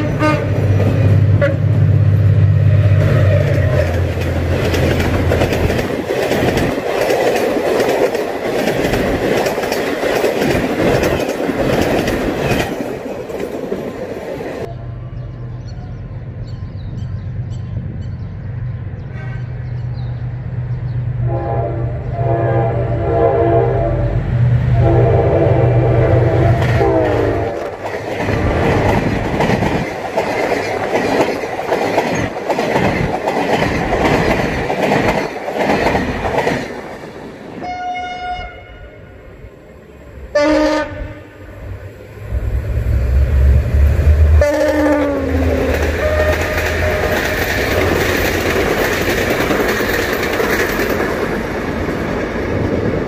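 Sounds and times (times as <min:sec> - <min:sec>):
another train horn: 0:00.0 - 0:00.6, 0:01.3 - 0:01.8, 0:21.2 - 0:27.7, 0:37.6 - 0:39.2, 0:40.3 - 0:41.6, 0:43.1 - 0:47.4
train horn blasts: 0:00.0 - 0:00.6, 0:01.3 - 0:01.8, 0:21.2 - 0:27.7, 0:37.6 - 0:39.2, 0:40.3 - 0:41.5, 0:44.1 - 0:47.4
train wheel clatter on rails: 0:03.5 - 0:14.7, 0:26.6 - 0:37.2, 0:45.5 - 0:53.0
diesel locomotive engine running: 0:39.1 - 0:52.6.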